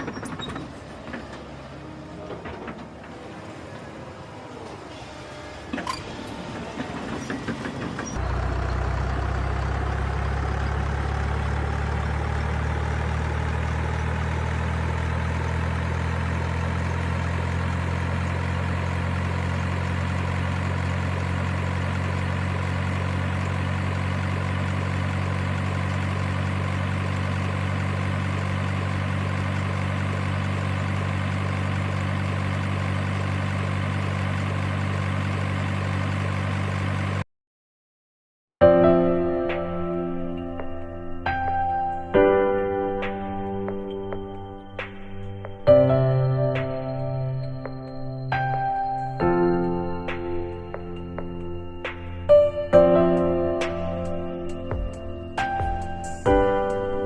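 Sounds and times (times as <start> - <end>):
low engine drone idling: 0.7 - 37.2, 38.9 - 57.0.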